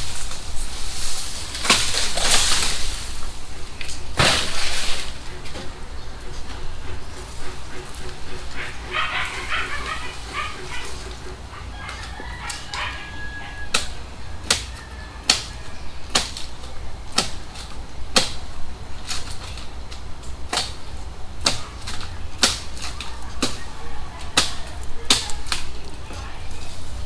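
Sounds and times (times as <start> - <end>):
chickens clucking: 0.0 - 17.9, 19.8 - 27.0
rooster crowing: 8.3 - 16.1, 23.0 - 25.0
machete chopping wood: 15.3 - 18.5, 21.4 - 23.6.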